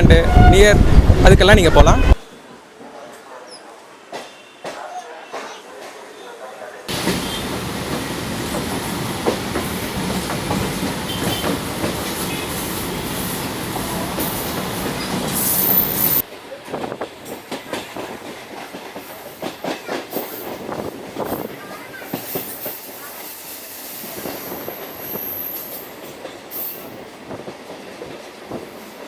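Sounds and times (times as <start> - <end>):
electric train rumbling on rails: 0.0 - 2.9, 6.9 - 29.0
train wheel clatter: 6.9 - 29.0
high thin squeal: 15.4 - 16.2.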